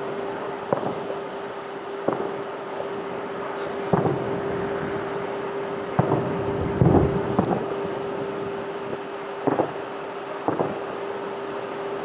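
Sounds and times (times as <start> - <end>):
steady low hum: 0.0 - 12.0
distant fireworks bangs: 0.7 - 1.3, 2.0 - 2.4, 3.5 - 8.1, 8.9 - 10.9.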